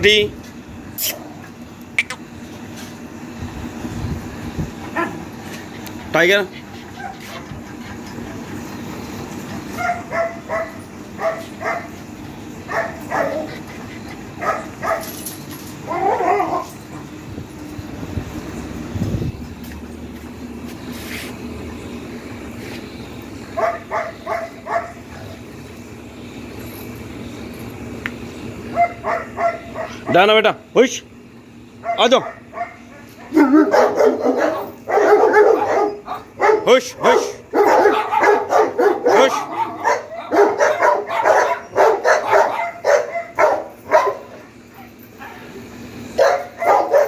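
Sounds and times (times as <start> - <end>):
steady low hum: 0.0 - 47.0
dog barking: 9.8 - 12.0, 12.7 - 13.5, 14.4 - 15.1, 15.9 - 16.7, 23.6 - 25.0, 28.7 - 30.2, 31.8 - 44.4, 46.2 - 47.0.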